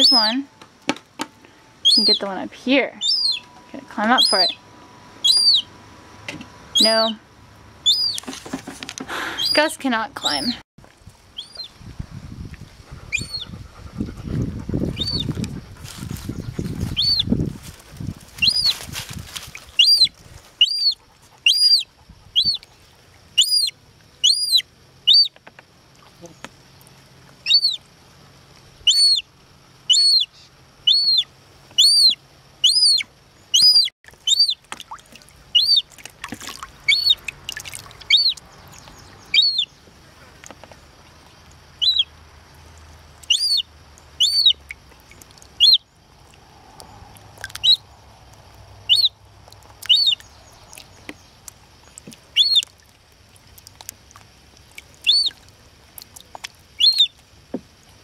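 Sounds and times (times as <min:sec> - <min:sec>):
gull chick peeping: 0:00.0 - 0:00.4, 0:01.8 - 0:02.4, 0:03.0 - 0:04.6, 0:05.2 - 0:05.7, 0:06.8 - 0:07.2, 0:07.8 - 0:08.4, 0:09.1 - 0:10.6, 0:11.4 - 0:11.7, 0:13.0 - 0:13.5, 0:14.4 - 0:15.5, 0:16.2 - 0:17.4, 0:18.4 - 0:18.8, 0:19.8 - 0:22.7, 0:23.4 - 0:25.4, 0:27.4 - 0:27.8, 0:28.8 - 0:29.2, 0:29.9 - 0:34.6, 0:35.5 - 0:36.0, 0:36.8 - 0:39.7, 0:41.8 - 0:42.1, 0:43.2 - 0:45.8, 0:47.5 - 0:47.9, 0:48.9 - 0:49.2, 0:49.8 - 0:50.9, 0:52.3 - 0:52.7, 0:55.0 - 0:55.4, 0:56.8 - 0:57.2.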